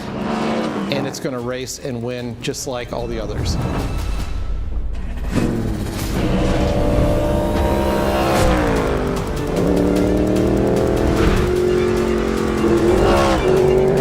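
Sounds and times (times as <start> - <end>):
race car engine: 0.0 - 1.5, 5.2 - 14.0
music: 0.0 - 14.0.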